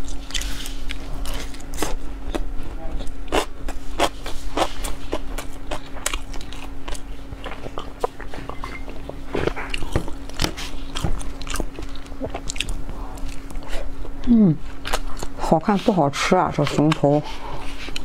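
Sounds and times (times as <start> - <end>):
wet chewing clicks and smacks: 0.0 - 13.7.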